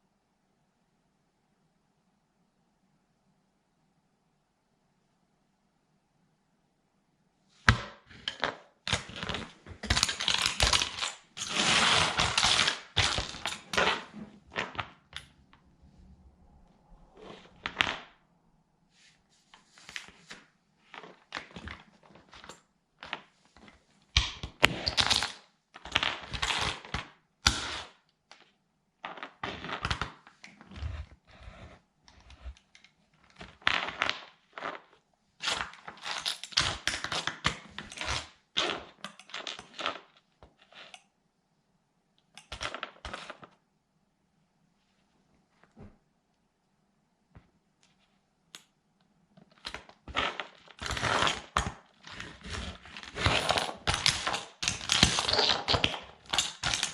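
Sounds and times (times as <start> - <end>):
plastic toy cracking underfoot: 49.6 - 56.9.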